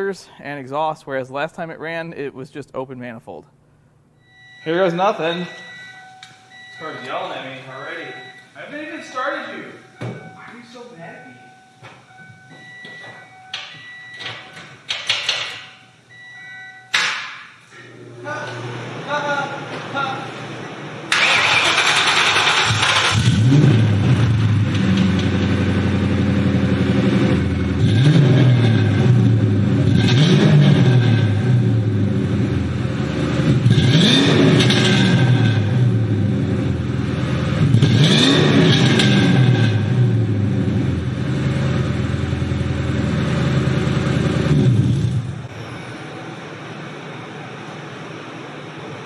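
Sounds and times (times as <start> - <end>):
car engine revving: 20.3 - 46.3
rattly exhaust: 21.1 - 46.2.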